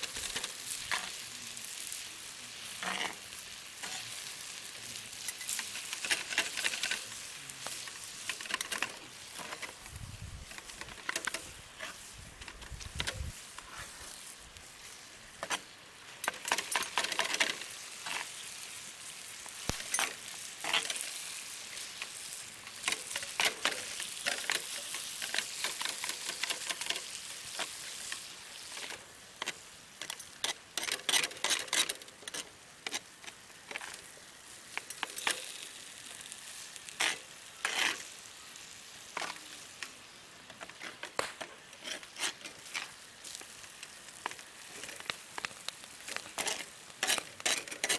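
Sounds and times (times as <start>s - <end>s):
noodles sizzling in a frying pan: 0.0s - 47.9s
spatula scraping and clicking: 2.8s - 4.1s, 5.2s - 9.9s, 10.5s - 14.0s, 16.2s - 18.4s, 19.4s - 34.1s, 34.7s - 38.1s, 39.2s - 39.9s, 40.5s - 47.9s.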